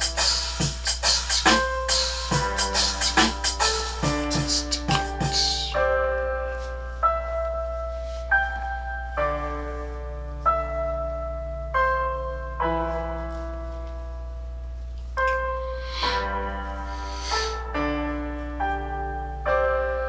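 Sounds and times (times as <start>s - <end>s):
drums: 0.0s - 5.8s
slow piano chords: 0.0s - 20.0s.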